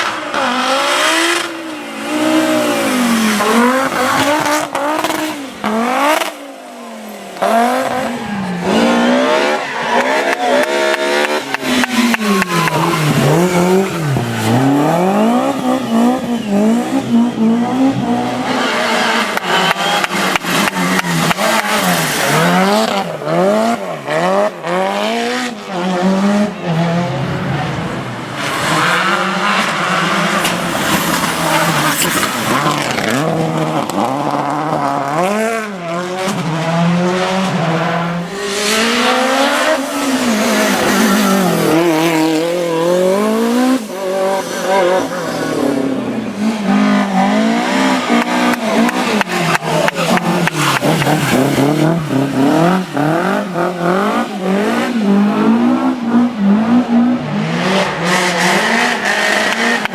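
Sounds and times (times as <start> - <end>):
rally car engines revving: 0.0 - 59.9
engine crackles: 38.0 - 55.1.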